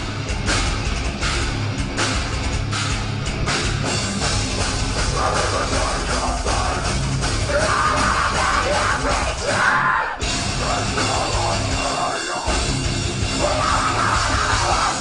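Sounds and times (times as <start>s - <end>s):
bass: 0.0s - 15.0s
distorted guitars: 0.0s - 15.0s
drum kit: 0.0s - 15.0s
person yelling vocals: 7.5s - 10.2s, 13.4s - 15.0s.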